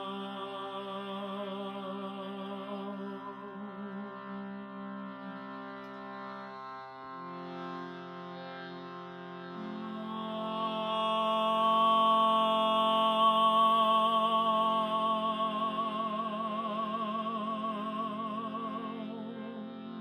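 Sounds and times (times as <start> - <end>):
steady drone: 9.5 - 20.0.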